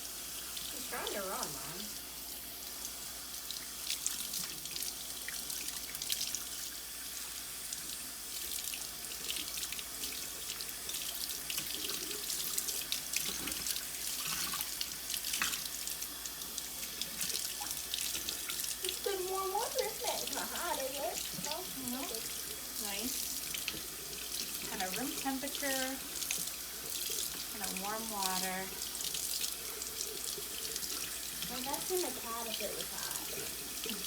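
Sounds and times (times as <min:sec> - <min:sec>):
water running from a faucet: 0:00.0 - 0:34.0
water splashing: 0:17.1 - 0:34.0.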